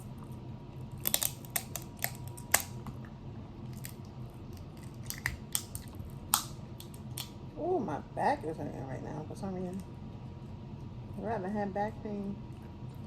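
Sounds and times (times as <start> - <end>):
crab shells cracking: 0.8 - 3.0, 3.6 - 7.4.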